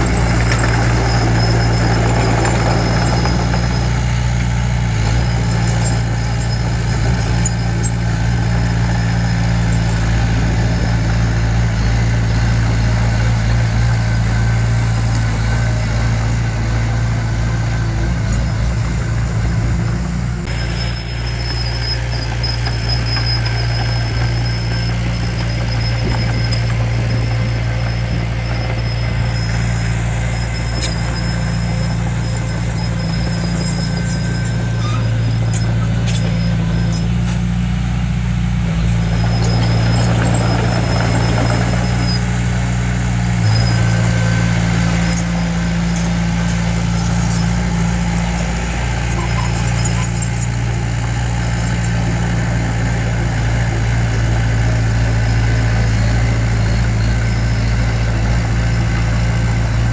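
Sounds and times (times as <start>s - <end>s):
faint high squeaks: 0.0s - 15.9s, 20.4s - 37.8s, 38.6s - 42.8s, 43.4s - 52.6s
construction machine engine droning: 0.0s - 59.9s
light metal clanks: 20.4s - 37.8s, 43.4s - 52.4s.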